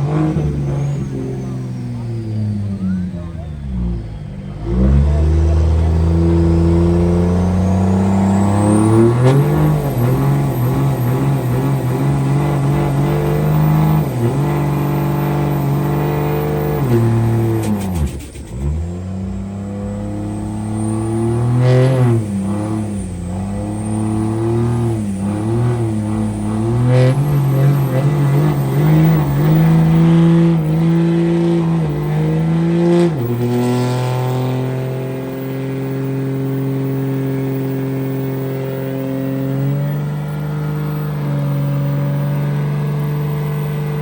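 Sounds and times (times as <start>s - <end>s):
truck engine revving high: 0.0s - 44.0s.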